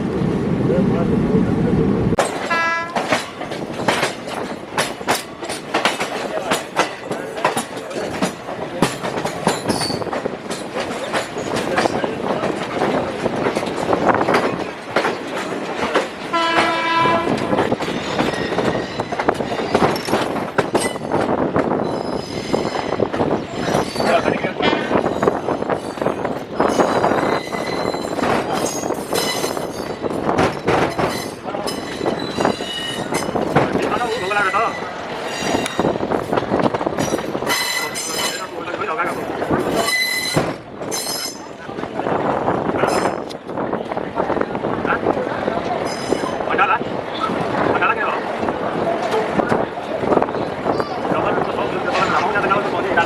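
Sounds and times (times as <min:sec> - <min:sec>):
train wheels clattering over rail joints: 0:02.2 - 0:44.4
high-pitched wheel squeals: 0:39.8 - 0:40.4.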